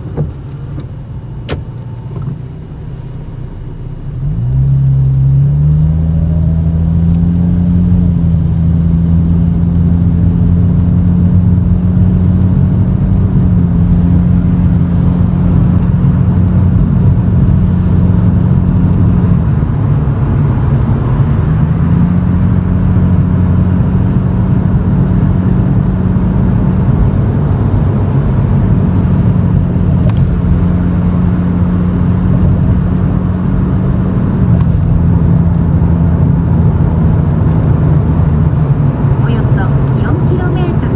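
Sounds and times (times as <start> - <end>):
car exhaust drone: 0.0 - 40.9.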